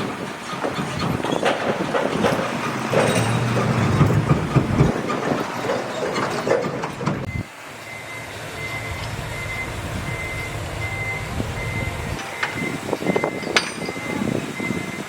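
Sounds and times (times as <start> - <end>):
heavy machinery engine: 0.0 - 15.0
machinery clanking: 0.0 - 15.0
reversing alarm beeping: 7.2 - 15.0.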